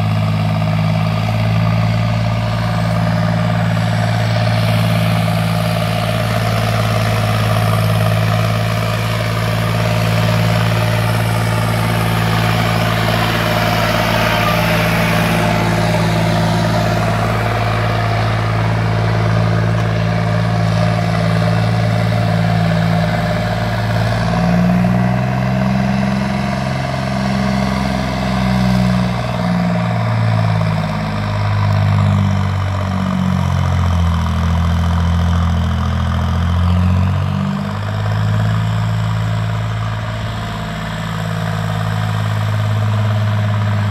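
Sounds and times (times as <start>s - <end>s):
tractor diesel engine idling: 0.0s - 43.9s.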